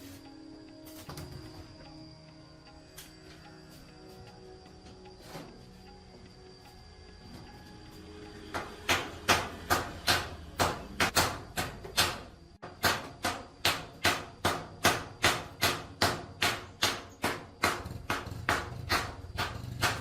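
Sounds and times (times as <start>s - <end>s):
hammer blows ringing: 8.5s - 20.0s.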